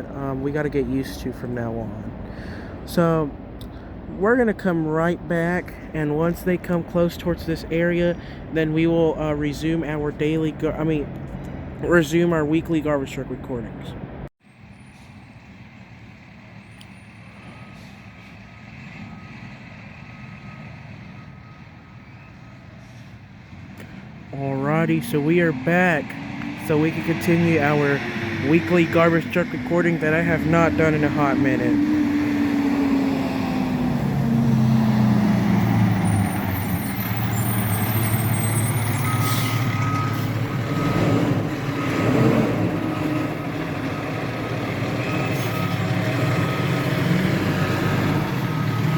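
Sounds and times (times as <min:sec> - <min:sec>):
faint reversing alarm beeping: 0:17.2 - 0:23.0, 0:37.2 - 0:40.6, 0:47.6 - 0:48.9.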